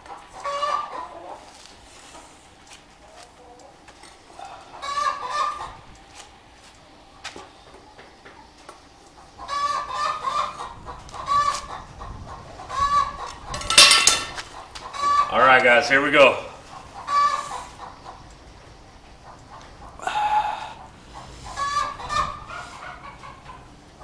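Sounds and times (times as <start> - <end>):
chickens squawking and clucking: 0.1 - 2.4, 3.1 - 5.9, 9.2 - 15.4, 16.6 - 18.3, 19.2 - 24.0.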